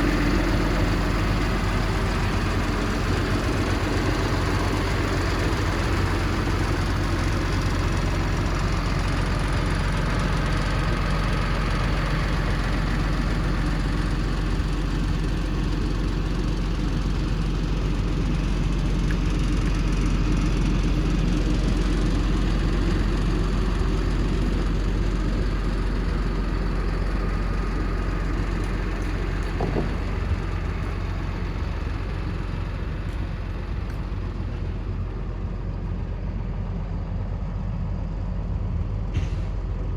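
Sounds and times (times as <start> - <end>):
diesel truck engine running: 0.0 - 39.9
short knock: 29.6 - 30.2.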